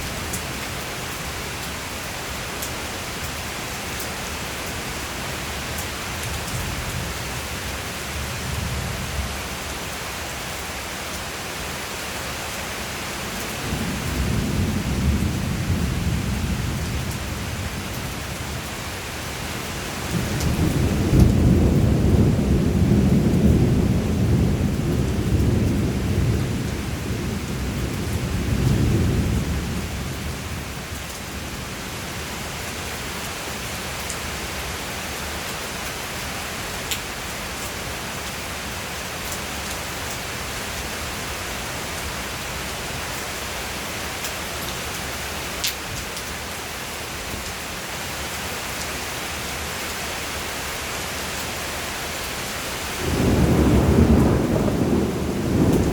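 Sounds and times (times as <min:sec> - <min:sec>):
sharp ticks of raindrops: 0:00.0 - 0:07.0, 0:09.2 - 0:11.4, 0:16.7 - 0:29.0, 0:29.8 - 0:49.2, 0:49.8 - 0:55.9
steady rain: 0:00.0 - 0:55.9
thunder rumbling: 0:53.0 - 0:55.9.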